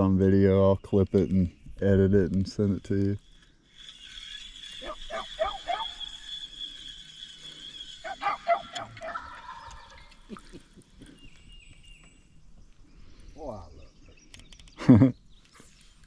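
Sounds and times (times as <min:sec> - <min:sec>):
turkey calls: 0:03.6 - 0:11.5.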